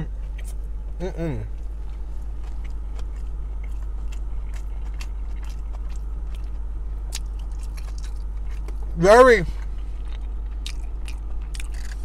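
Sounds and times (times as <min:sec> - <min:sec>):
steady low hum: 0:00.0 - 0:12.0
person chewing: 0:01.3 - 0:08.9, 0:09.5 - 0:12.0.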